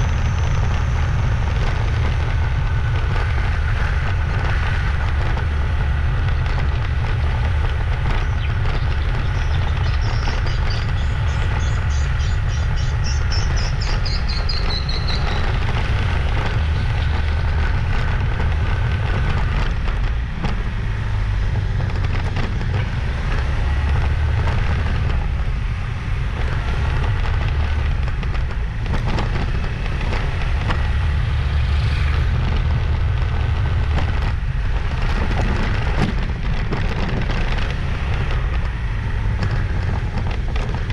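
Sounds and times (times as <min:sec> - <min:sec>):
motorbike engine: 0:00.0 - 0:40.9
wind buffeting microphone: 0:00.0 - 0:40.9.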